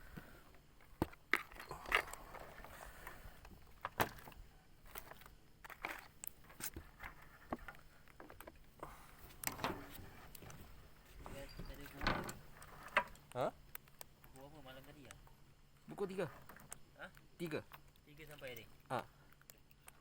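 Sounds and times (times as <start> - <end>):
faint steady background noise: 0.0 - 20.0
light clicks and knocks: 9.3 - 15.2.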